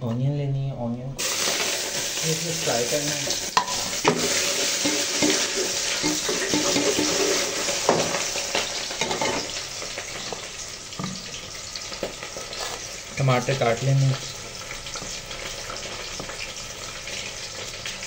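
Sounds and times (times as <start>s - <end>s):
onions sizzling in hot oil: 1.2s - 18.0s
metal spoon scraping a pot: 3.6s - 9.5s.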